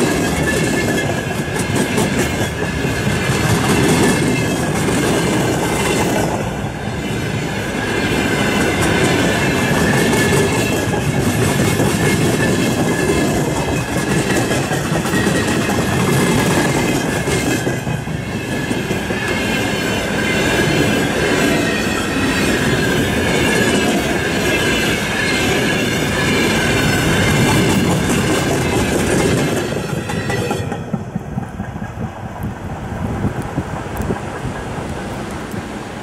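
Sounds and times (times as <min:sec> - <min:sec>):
train wheels clattering: 0:00.0 - 0:32.7
high wavering squeal: 0:18.1 - 0:30.8.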